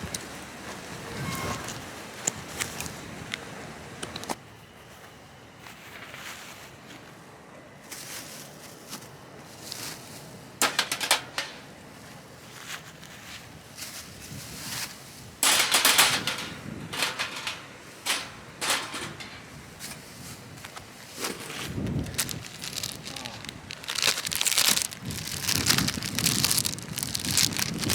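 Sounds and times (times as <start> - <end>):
rustling: 7.9 - 27.9
handling clicks and knocks: 10.6 - 11.8, 15.4 - 20.0, 20.6 - 27.9.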